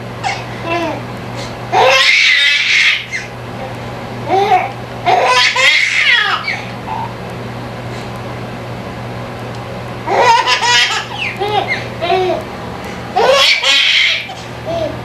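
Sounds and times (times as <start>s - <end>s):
dishwasher running: 0.0s - 15.0s
baby laughing: 0.2s - 1.0s, 1.7s - 3.3s, 4.3s - 7.1s, 10.1s - 12.4s, 13.2s - 15.0s.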